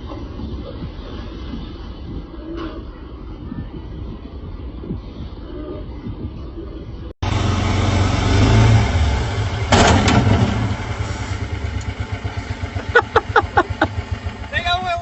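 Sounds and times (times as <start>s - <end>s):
motorboat engine: 7.2s - 15.0s.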